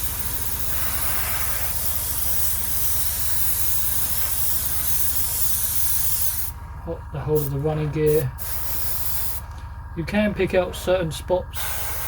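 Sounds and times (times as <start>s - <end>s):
airbrush spraying hiss: 0.0s - 6.6s, 7.4s - 9.4s, 11.6s - 12.0s
steady low hum: 0.0s - 12.0s.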